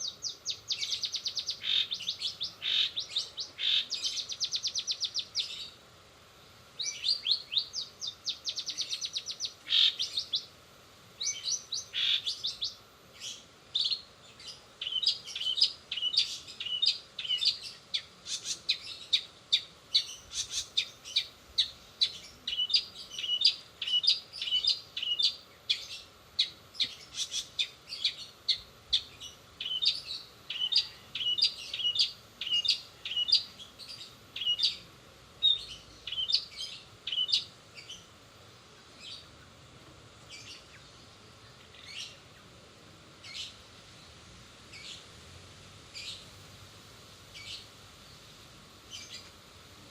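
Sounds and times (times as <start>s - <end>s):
bird singing sharp high chirps: 0.0s - 5.8s, 6.8s - 10.5s, 11.2s - 34.8s, 35.4s - 38.0s.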